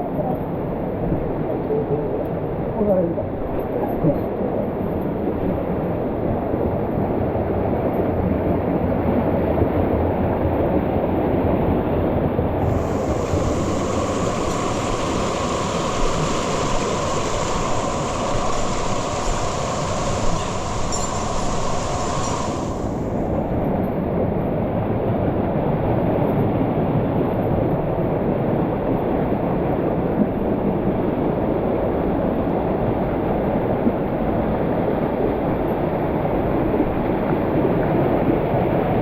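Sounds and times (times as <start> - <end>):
waterfall rushing: 12.6 - 23.4.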